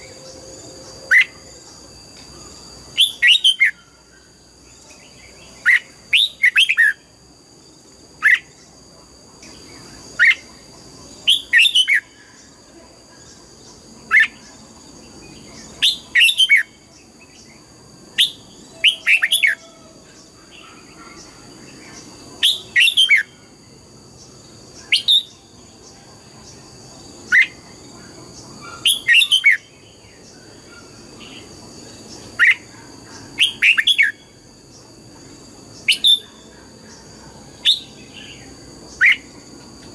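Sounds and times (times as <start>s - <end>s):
bird whistled song: 0.0s - 1.5s, 2.9s - 3.9s, 5.5s - 7.0s, 11.3s - 12.2s, 15.8s - 16.8s, 18.2s - 19.8s, 22.4s - 23.4s, 24.8s - 25.4s, 28.6s - 29.8s, 33.4s - 34.3s, 35.8s - 36.5s, 37.6s - 39.3s
faint high whine: 0.0s - 39.9s.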